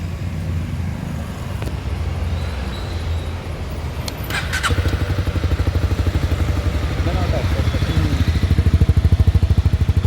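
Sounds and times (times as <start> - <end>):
motorcycle engine exhaust running: 5.0 - 10.0.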